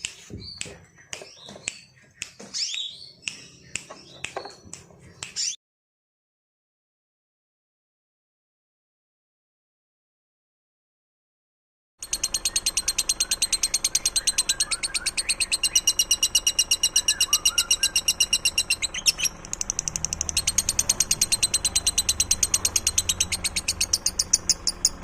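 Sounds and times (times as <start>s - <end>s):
faint lower bird chirps: 12.0s - 25.0s
songbird high trill: 12.1s - 25.0s.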